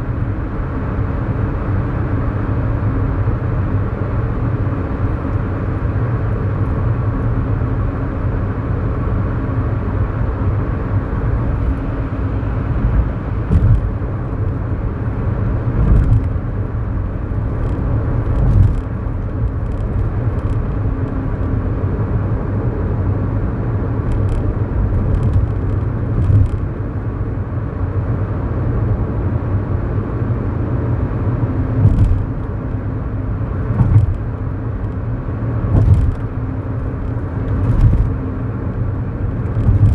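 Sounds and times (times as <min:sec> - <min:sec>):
car engine and tyre rumble: 0:00.0 - 0:39.9
brief thumps: 0:13.5 - 0:13.9.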